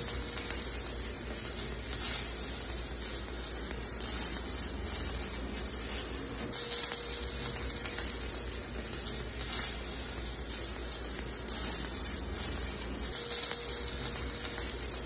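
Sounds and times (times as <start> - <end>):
arc welding crackling sizzle: 0.0 - 15.0.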